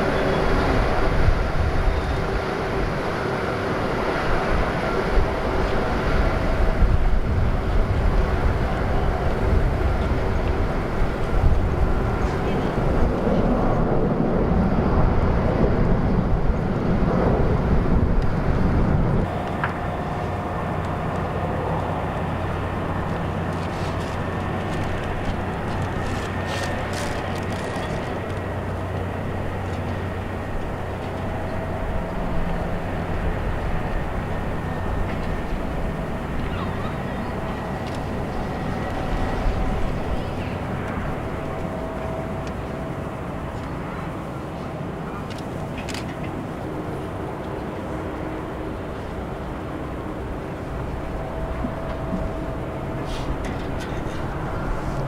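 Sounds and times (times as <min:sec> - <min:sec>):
jet engines rumbling: 0:00.0 - 0:55.0
wind buffeting microphone: 0:00.0 - 0:55.0
faint whining tones: 0:19.2 - 0:55.0.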